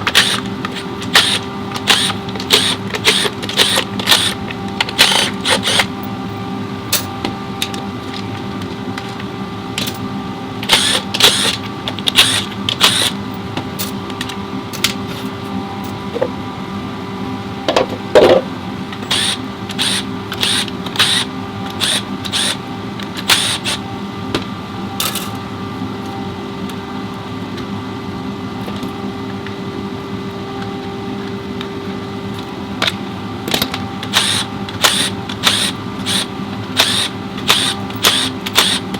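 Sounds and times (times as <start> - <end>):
steady hum: 0.0 - 38.9.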